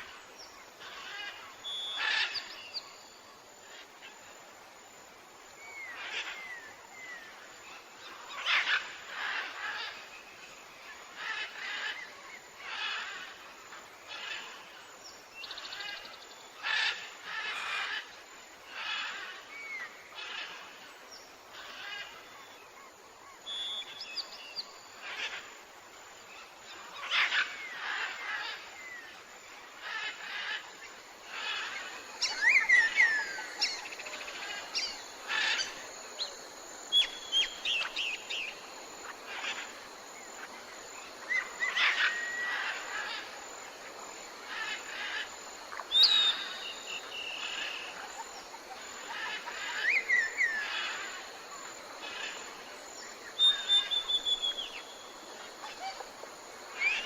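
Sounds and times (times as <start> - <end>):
background forest noise: 0.0 - 57.0
birds chirping and whistling: 45.9 - 47.8, 53.4 - 54.8.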